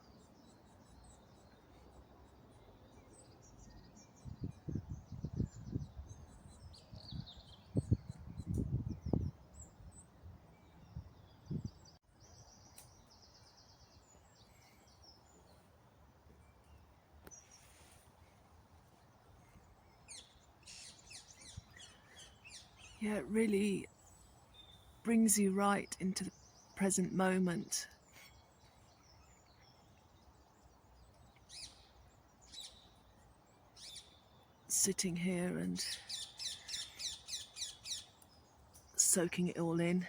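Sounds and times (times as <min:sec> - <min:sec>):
birds chirping and trilling: 0:00.0 - 0:40.0.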